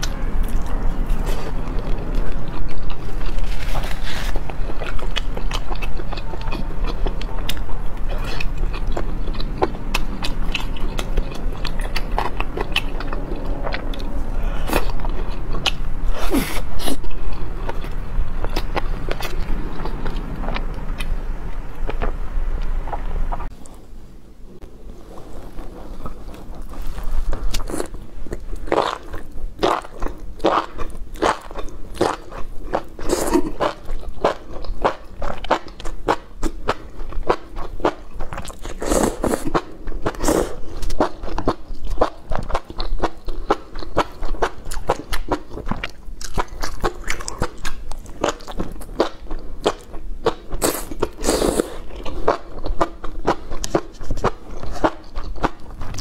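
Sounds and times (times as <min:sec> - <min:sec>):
chewing with wet smacks: 0:00.0 - 0:03.5, 0:04.4 - 0:15.9, 0:39.4 - 0:56.0
slurping: 0:50.6 - 0:51.9.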